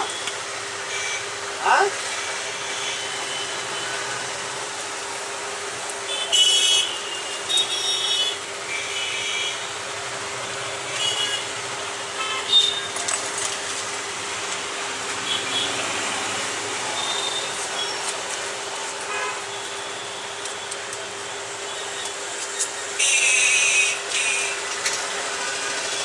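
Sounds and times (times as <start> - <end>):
street traffic: 0.0 - 26.0
vehicle horn toots: 6.1 - 9.6, 23.0 - 24.6.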